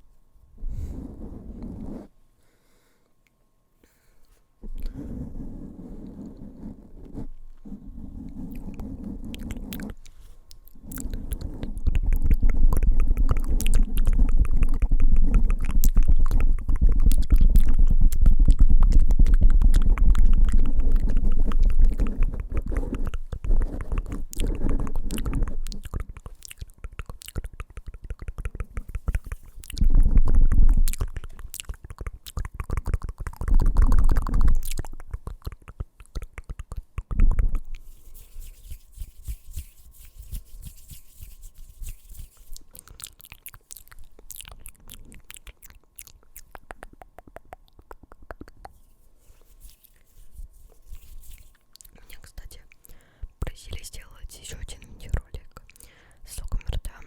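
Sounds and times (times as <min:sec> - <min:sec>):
fingertips tapping a microphone: 0:08.3 - 0:42.7, 0:46.2 - 0:52.6.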